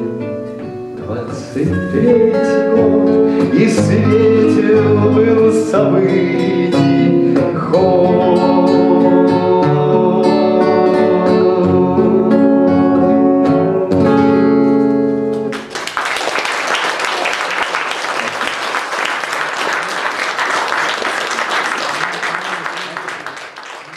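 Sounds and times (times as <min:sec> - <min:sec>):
acoustic guitar chords: 0:00.0 - 0:15.8
audience applause: 0:15.5 - 0:23.9.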